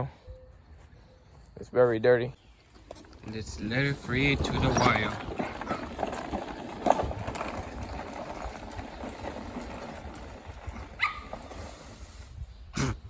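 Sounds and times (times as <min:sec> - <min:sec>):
background noise: 0:00.0 - 0:13.0
dog barking: 0:11.0 - 0:11.3.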